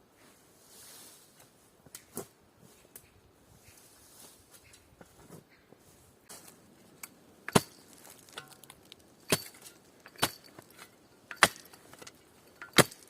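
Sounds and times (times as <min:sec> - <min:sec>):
axe chopping wood: 0:07.5 - 0:13.0.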